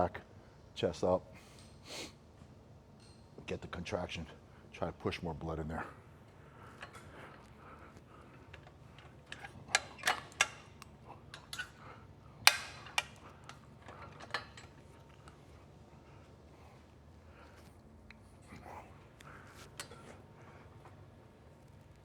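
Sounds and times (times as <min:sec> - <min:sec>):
gym machine metallic clanks: 0:12.4 - 0:15.0.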